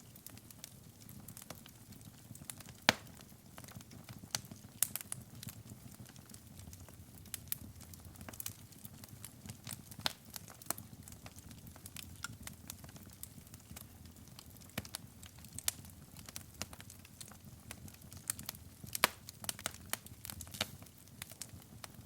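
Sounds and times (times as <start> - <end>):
low rumble of flame: 0.0 - 22.0
wood fire crackling and popping: 0.0 - 22.0.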